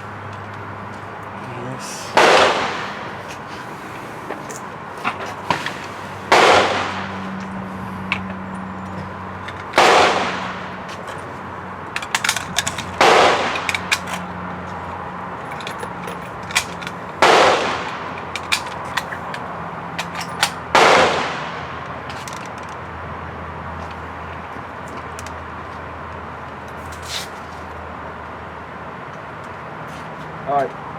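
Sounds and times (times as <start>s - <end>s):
rifle shots with echo: 2.1s - 3.2s, 6.2s - 7.4s, 9.8s - 10.8s, 13.0s - 13.9s, 17.2s - 18.1s, 20.7s - 21.8s.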